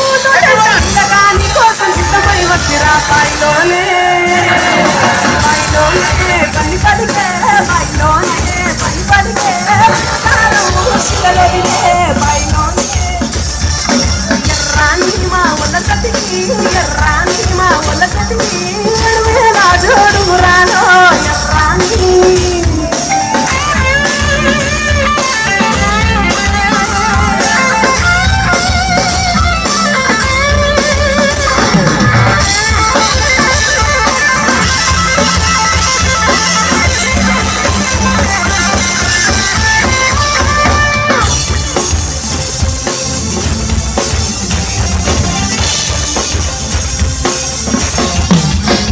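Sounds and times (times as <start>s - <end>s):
drum kit beat: 0.0s - 48.9s
guitar: 0.0s - 48.9s
wavering lead melody: 1.4s - 15.2s.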